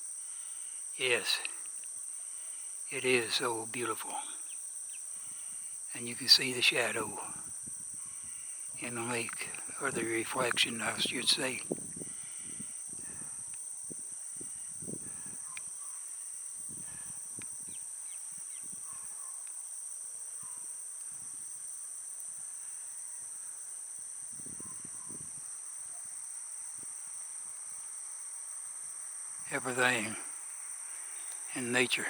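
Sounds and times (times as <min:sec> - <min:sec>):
insect chorus trilling: 0:00.0 - 0:32.0
faint bird chirps: 0:14.4 - 0:16.3, 0:24.4 - 0:25.3.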